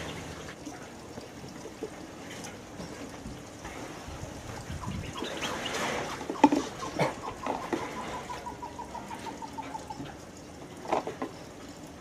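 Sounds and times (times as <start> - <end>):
bird calling: 4.7 - 10.2.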